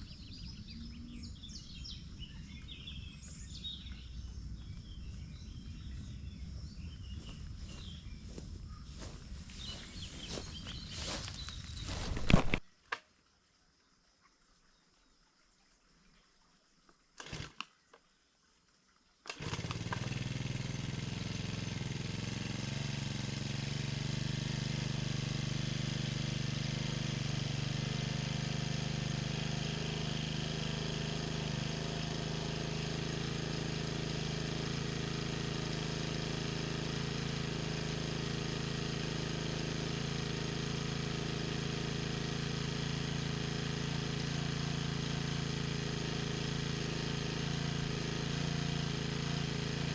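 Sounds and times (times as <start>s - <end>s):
small petrol engine running: 0.0s - 12.6s, 17.2s - 17.6s, 19.3s - 49.9s
starter cord pulls: 10.3s - 12.6s, 17.2s - 17.7s, 19.3s - 20.6s.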